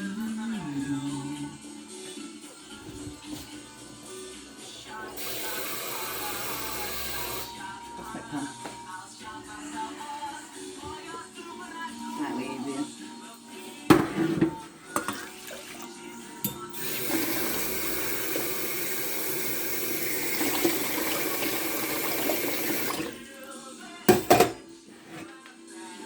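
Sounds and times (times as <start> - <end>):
kitchen tap running: 5.2 - 7.5, 15.0 - 23.3.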